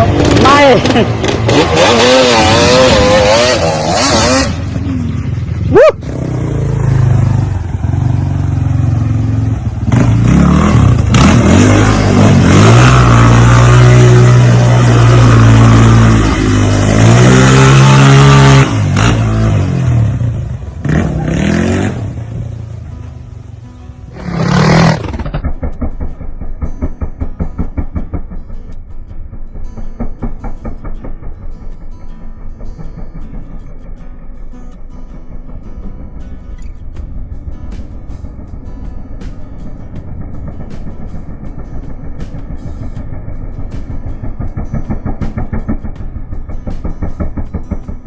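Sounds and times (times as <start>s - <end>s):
off-road vehicle engine revving: 0.0s - 23.1s, 24.1s - 25.9s
sharp knock: 25.0s - 28.7s, 29.8s - 31.4s, 43.7s - 48.0s.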